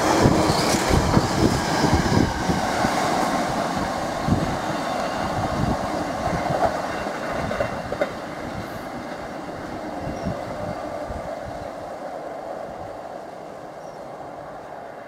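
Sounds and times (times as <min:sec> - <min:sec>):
freight train wheels knocking: 0:00.0 - 0:09.3
train rolling on track: 0:00.0 - 0:15.0.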